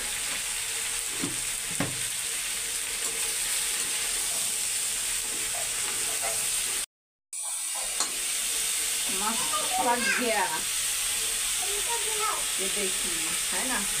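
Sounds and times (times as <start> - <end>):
food sizzling in oil: 0.0 - 14.0
spatula knocks on pan: 1.2 - 2.0
spatula scraping a pan: 3.0 - 6.8.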